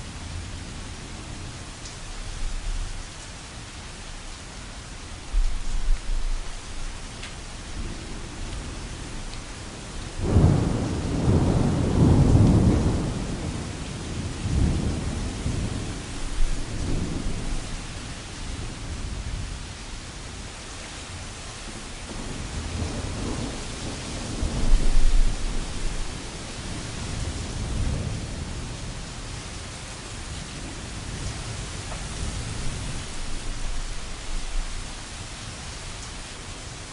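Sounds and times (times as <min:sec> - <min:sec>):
rain pattering on tent canvas: 0:01.6 - 0:36.9
thunder rumbling: 0:07.7 - 0:19.4, 0:22.0 - 0:29.1, 0:30.6 - 0:35.2.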